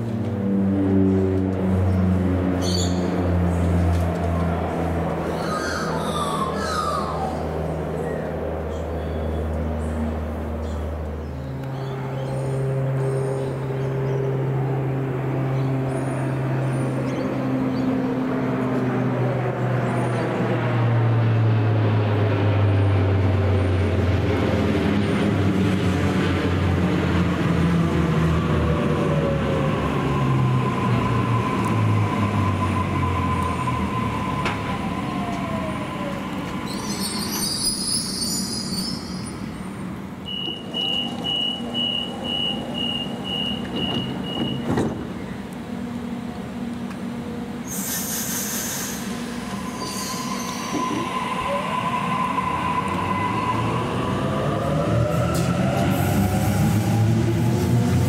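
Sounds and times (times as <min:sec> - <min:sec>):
brake squeal: 0:36.5 - 0:39.7, 0:40.3 - 0:44.8, 0:47.6 - 0:54.0
train motor whine: 0:40.3 - 0:58.0
air hiss: 0:47.7 - 0:50.7.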